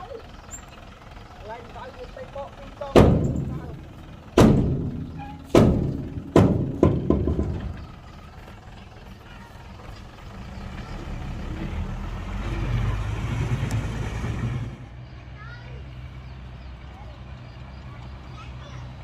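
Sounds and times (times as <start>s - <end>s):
diesel engine rumble: 0.0s - 19.0s
sharp loud knocks: 2.9s - 8.0s.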